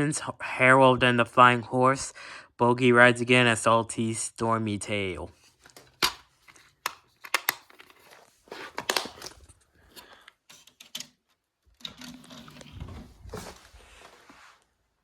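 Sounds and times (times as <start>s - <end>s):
plastic clicks and crinkling: 5.6s - 13.0s.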